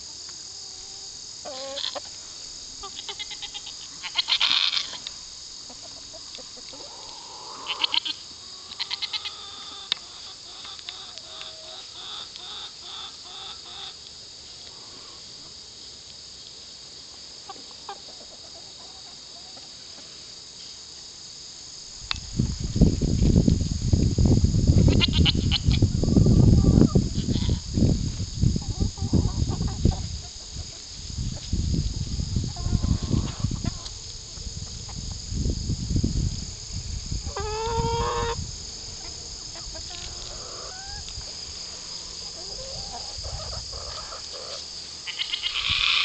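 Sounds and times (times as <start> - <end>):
crickets chirring: 0.0 - 46.0
goats bleating: 8.8 - 9.3, 45.1 - 46.0.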